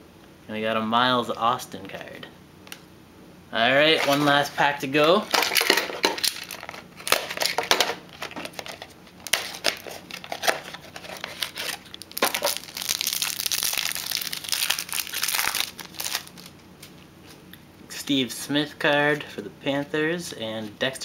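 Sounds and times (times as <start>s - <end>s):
wrapper tearing and crinkling: 5.4s - 16.6s.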